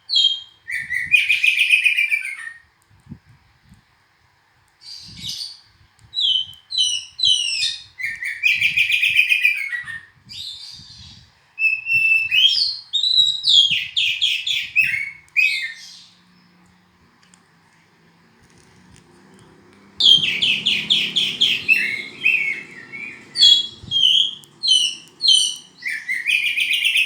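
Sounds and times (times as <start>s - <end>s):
bird singing whistles and trills: 0.1s - 2.7s, 6.2s - 16.6s, 20.0s - 27.0s.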